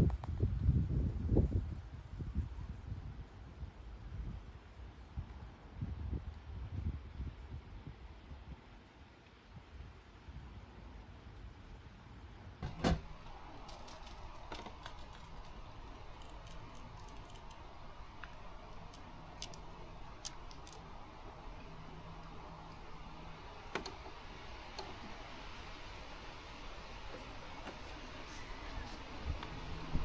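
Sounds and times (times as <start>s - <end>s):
light clicks and taps: 12.6s - 25.8s
faint low hum: 12.6s - 30.0s.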